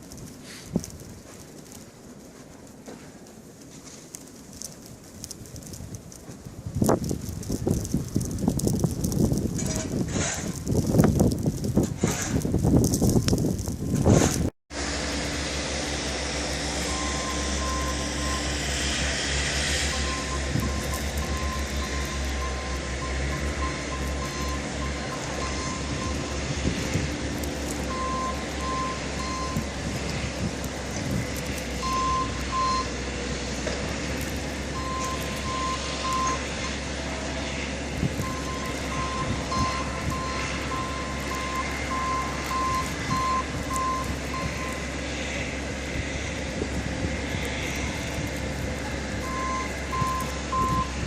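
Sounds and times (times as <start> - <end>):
truck engine rumbling: 0.0 - 51.0
vehicle backup alarm beeping: 16.6 - 18.7, 19.9 - 27.0, 27.6 - 29.8, 31.8 - 33.0, 34.7 - 37.2, 38.1 - 45.0, 49.2 - 51.0.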